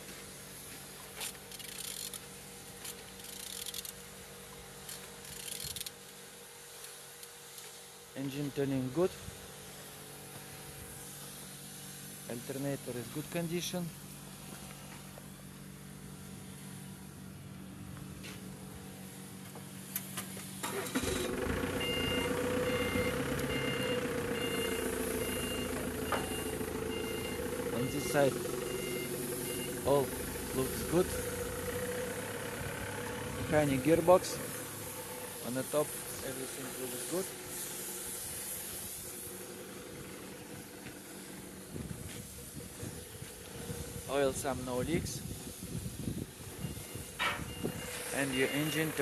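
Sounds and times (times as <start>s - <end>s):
vehicle engine running: 0.0s - 49.0s
engine turned over clicking: 19.4s - 36.3s
reversing alarm beeping: 21.8s - 29.9s, 46.6s - 49.0s.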